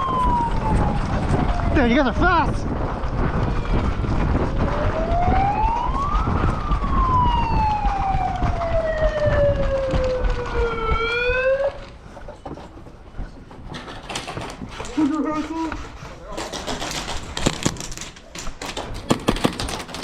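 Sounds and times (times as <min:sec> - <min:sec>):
wind rumble on microphone: 0:00.0 - 0:14.9
siren winding up and down: 0:03.5 - 0:12.0.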